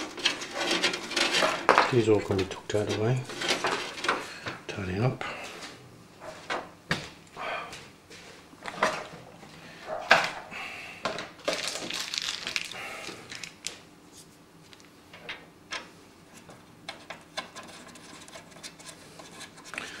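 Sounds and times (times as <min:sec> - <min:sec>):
cable rustling: 0:00.0 - 0:04.6, 0:11.4 - 0:14.9.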